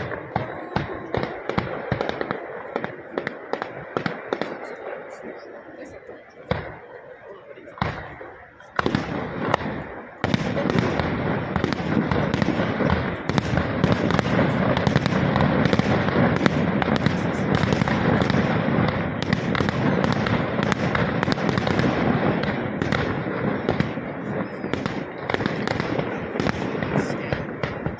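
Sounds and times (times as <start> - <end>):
fireworks bangs and crackling: 0.0 - 27.9.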